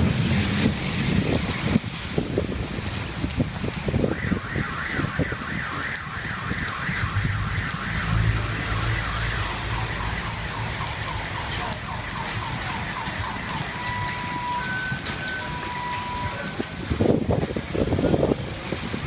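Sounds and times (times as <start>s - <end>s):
heavy rain on pavement: 0.0s - 19.0s.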